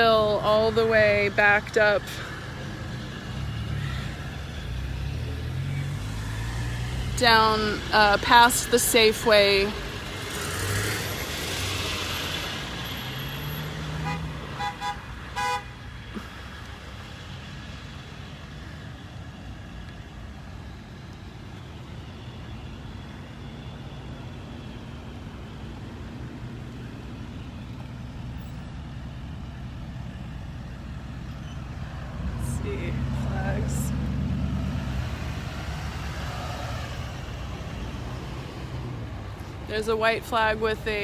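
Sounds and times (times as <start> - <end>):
cars and trucks driving past: 0.0 - 41.0
car horn short toots: 14.0 - 15.7.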